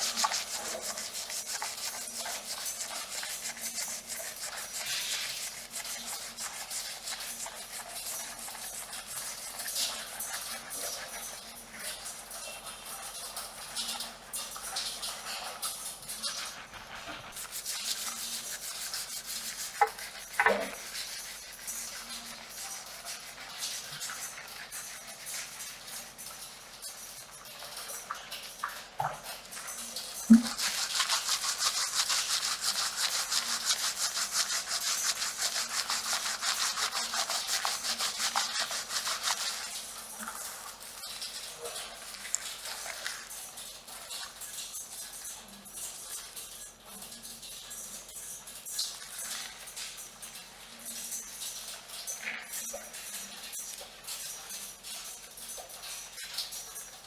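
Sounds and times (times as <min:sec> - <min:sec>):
fingernails scratching scalp: 0:00.0 - 0:07.4, 0:30.4 - 0:39.8.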